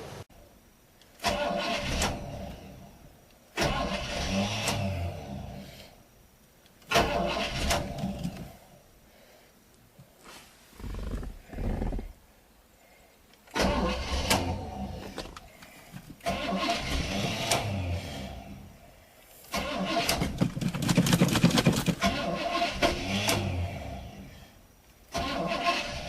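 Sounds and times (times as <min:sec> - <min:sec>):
car engine cranking and starting: 0:01.1 - 0:05.9, 0:06.8 - 0:08.6, 0:13.4 - 0:18.8, 0:19.4 - 0:24.3, 0:25.0 - 0:26.0.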